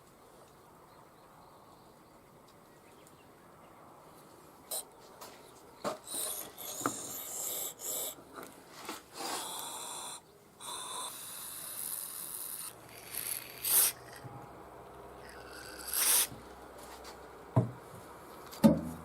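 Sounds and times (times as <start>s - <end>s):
short hissing: 9.1s - 14.2s, 15.2s - 16.4s
scraping and rubbing small parts: 11.7s - 14.3s, 15.2s - 17.2s.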